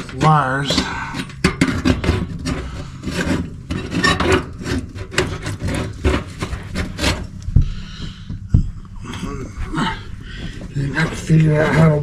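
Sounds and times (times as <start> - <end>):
scraping on sheet metal: 0.0 - 7.4.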